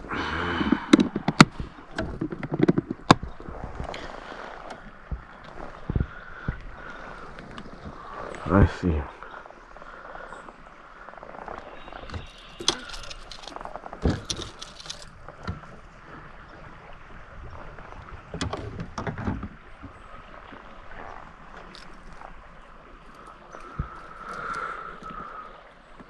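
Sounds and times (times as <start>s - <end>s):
water sounds around kayak: 0.0s - 26.0s
sharp clicks and thumps: 12.1s - 15.6s.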